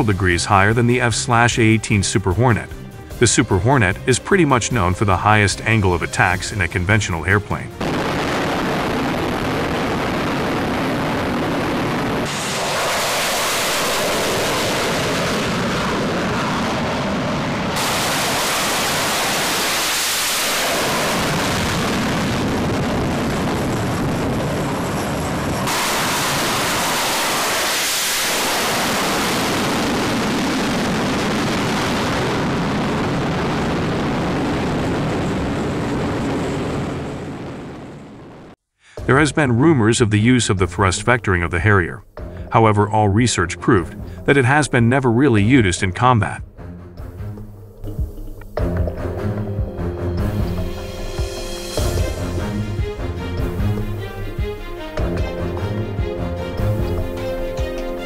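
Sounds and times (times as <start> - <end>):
jet engine roar: 7.8 - 38.6
jet swooshing past: 12.0 - 21.6.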